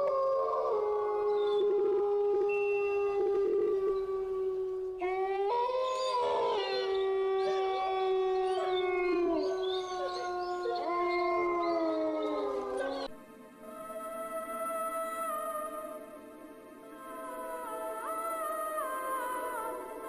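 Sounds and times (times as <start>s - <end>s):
dogs howling: 0.0s - 13.2s.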